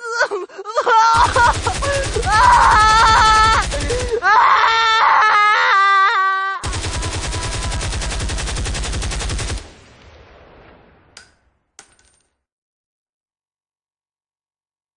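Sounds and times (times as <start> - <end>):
person wailing: 0.0 - 8.2
automatic gunfire: 1.2 - 4.2, 6.6 - 9.8.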